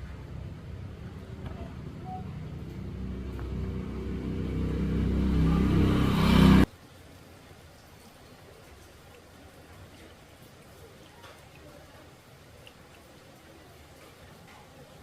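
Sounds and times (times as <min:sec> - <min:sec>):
engine running: 0:00.0 - 0:06.7.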